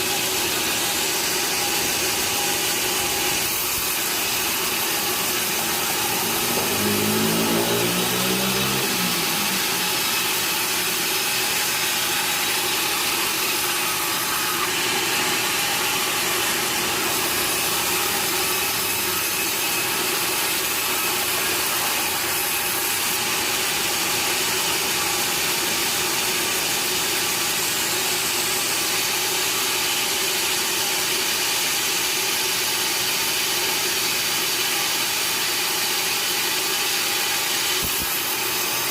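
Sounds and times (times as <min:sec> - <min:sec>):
sawmill machinery running: 0:00.0 - 0:38.9
engine-like tone rising and falling: 0:00.1 - 0:22.8.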